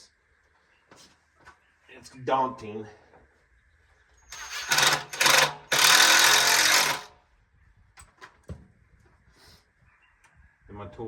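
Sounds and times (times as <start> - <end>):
power driver driving screw into plastic: 4.3 - 7.1.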